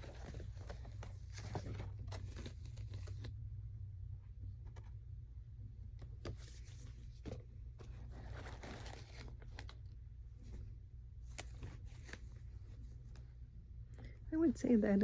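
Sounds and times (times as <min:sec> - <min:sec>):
packaging rustling and crinkling: 0:00.0 - 0:03.4, 0:06.3 - 0:10.6
steady low hum: 0:00.0 - 0:15.0.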